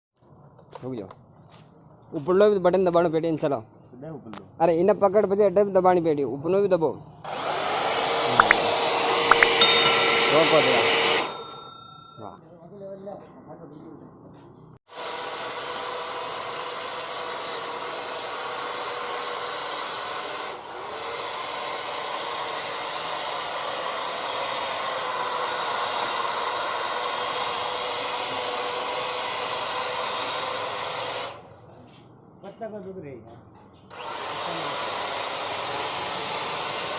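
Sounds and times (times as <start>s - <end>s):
electric hedge trimmer running: 7.3s - 8.1s.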